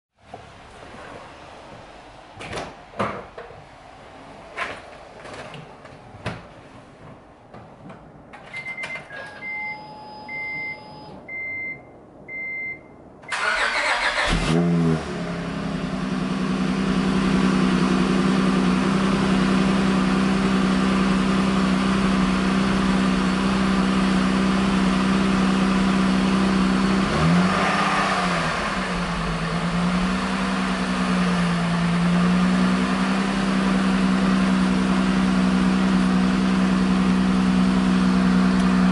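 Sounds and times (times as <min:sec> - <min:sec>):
car engine starting and idling: 0:13.2 - 0:38.9.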